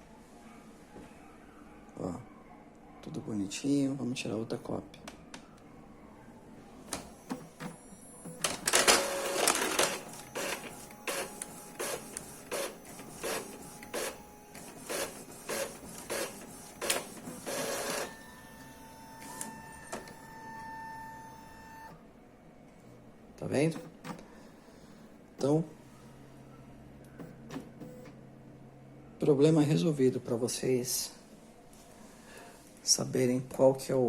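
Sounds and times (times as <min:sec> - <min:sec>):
printer paper feed whirr: 0:06.8 - 0:22.0
print carriage clacking: 0:06.9 - 0:18.2.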